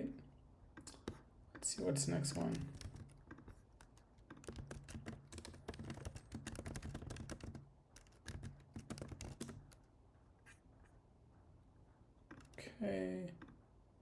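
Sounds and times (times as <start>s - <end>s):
keyboard typing clicks: 2.1s - 9.8s.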